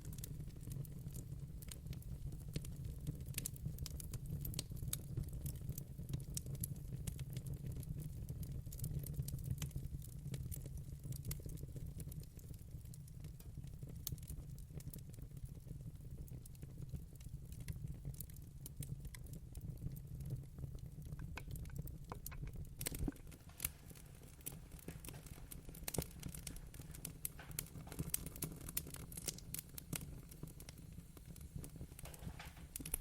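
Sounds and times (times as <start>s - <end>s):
wood fire crackling: 0.0s - 33.0s
sharp pops of fire: 21.0s - 33.0s.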